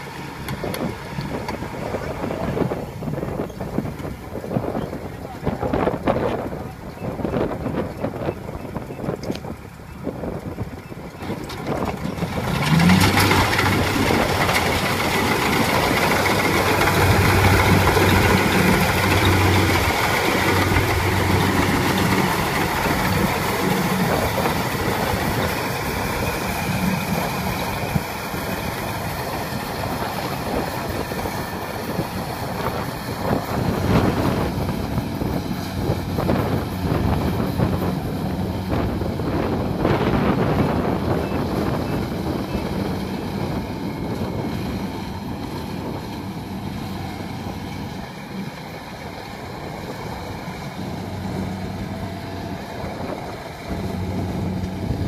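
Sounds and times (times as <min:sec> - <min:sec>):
diesel engine drone: 0:00.0 - 0:55.0
harvesting machinery din: 0:11.2 - 0:55.0.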